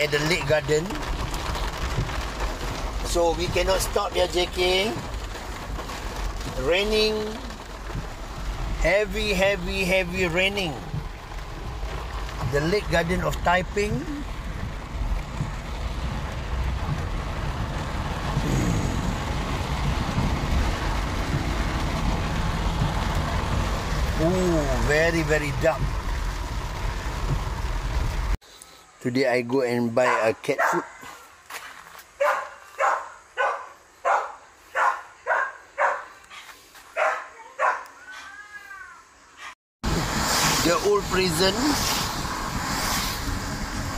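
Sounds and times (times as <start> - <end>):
car engine and tyre rumble: 0.0 - 28.4, 39.0 - 43.9
rain hissing on car: 0.0 - 28.4, 37.9 - 43.9
dog barking: 30.0 - 31.1, 32.2 - 37.9.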